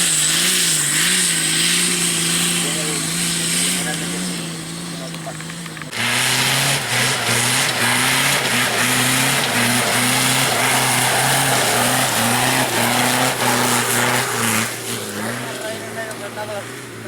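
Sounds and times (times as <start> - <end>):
engine at full throttle: 0.0 - 17.0.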